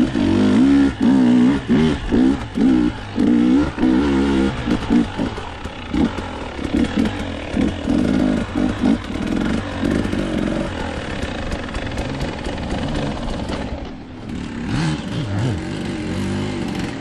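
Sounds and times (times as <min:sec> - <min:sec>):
dirt bike engine revving: 0:00.0 - 0:17.0
sharp clicks and clatter: 0:04.5 - 0:14.4.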